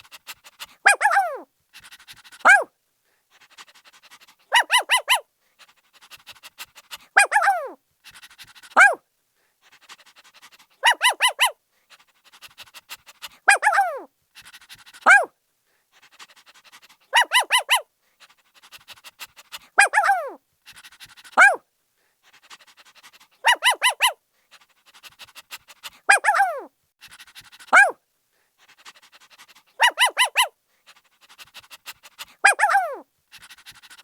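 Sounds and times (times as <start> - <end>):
puppy panting: 0.0 - 2.7, 3.3 - 9.0, 9.6 - 34.0
puppy yipping: 0.8 - 1.5, 2.4 - 2.7, 4.5 - 5.2, 7.2 - 7.8, 8.8 - 9.0, 10.8 - 11.6, 13.5 - 14.1, 15.0 - 15.3, 17.1 - 17.9, 19.8 - 20.4, 21.4 - 21.6, 23.4 - 24.2, 25.8 - 26.7, 27.7 - 28.0, 29.4 - 30.6, 32.2 - 33.5.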